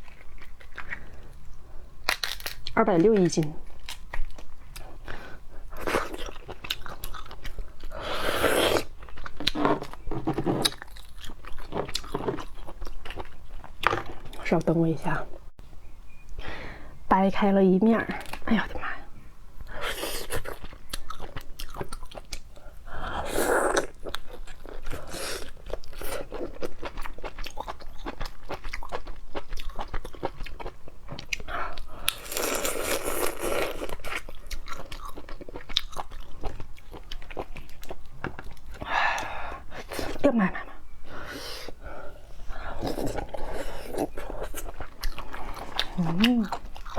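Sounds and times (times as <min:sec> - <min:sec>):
crab shell cracking and chewing: 0:00.0 - 0:08.0, 0:08.6 - 0:14.4, 0:19.7 - 0:22.7, 0:23.4 - 0:39.7
crab shell cracking: 0:02.1 - 0:03.2.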